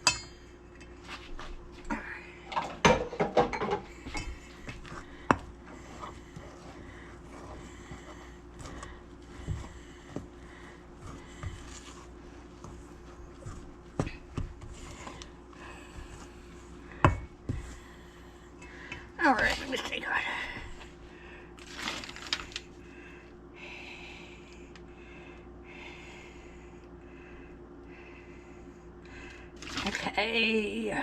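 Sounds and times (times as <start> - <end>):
faint steady hum: 0.0 - 31.0
utensils knocking and scraping bowl: 2.6 - 15.3.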